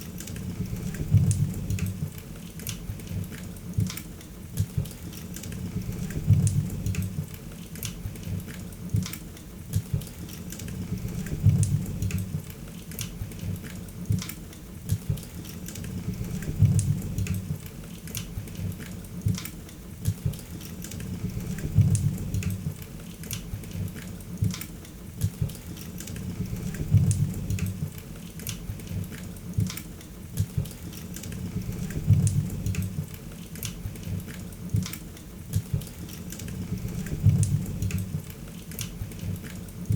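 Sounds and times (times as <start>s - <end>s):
low rumble of flame: 0.4s - 2.2s, 5.6s - 7.4s, 10.8s - 12.5s, 15.8s - 17.7s, 21.0s - 22.8s, 26.2s - 28.0s, 31.3s - 33.2s, 36.5s - 38.3s.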